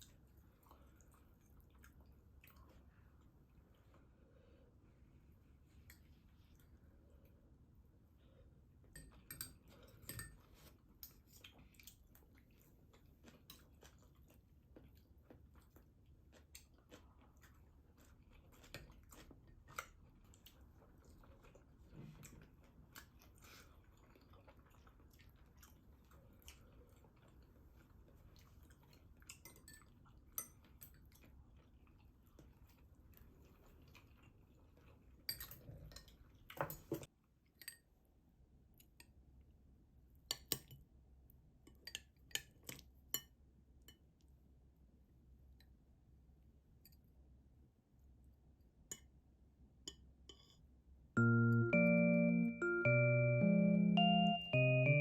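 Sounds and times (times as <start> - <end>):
chewing: 0.0 - 4.2, 8.9 - 36.6.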